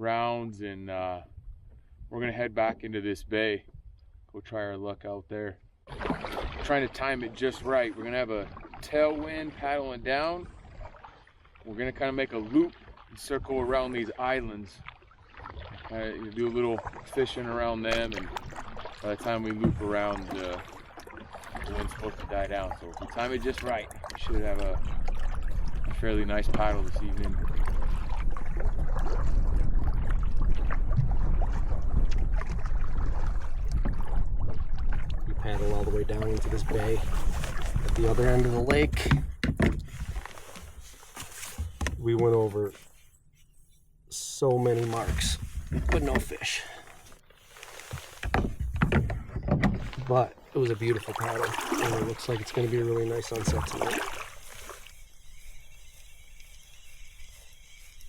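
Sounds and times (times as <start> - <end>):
water splashing around canoe: 5.8 - 58.0
wind rumbling on microphone: 23.9 - 40.3, 45.0 - 46.3.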